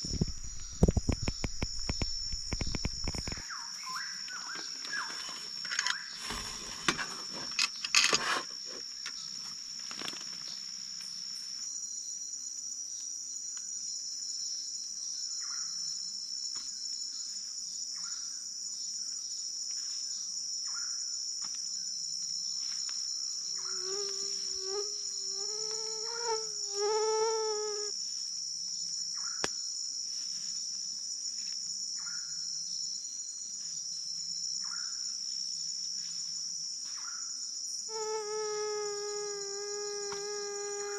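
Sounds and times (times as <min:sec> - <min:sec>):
faint chirps: 0:00.0 - 0:06.6
insect chorus drone: 0:00.0 - 0:40.9.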